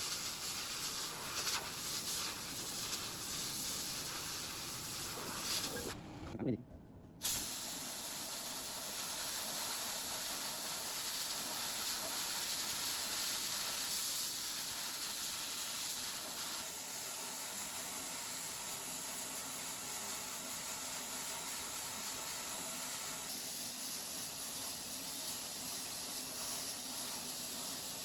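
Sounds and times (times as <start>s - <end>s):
steady hiss: 0.0s - 6.0s, 7.2s - 28.0s.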